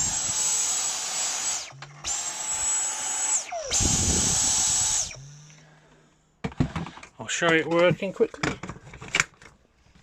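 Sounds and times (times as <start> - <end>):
vacuum motor whine: 0.0 - 5.7.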